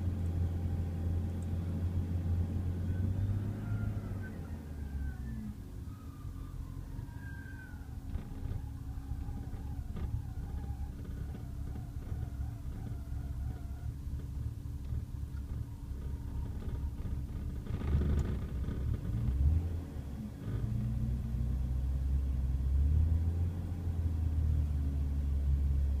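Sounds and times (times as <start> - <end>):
car engine idling roughly: 7.9 - 19.2.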